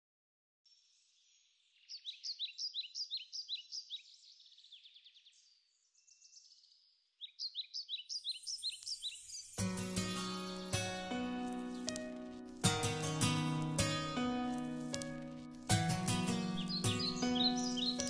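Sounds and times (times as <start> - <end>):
bird chirping: 0.7 - 18.0
guitar music: 9.6 - 18.0.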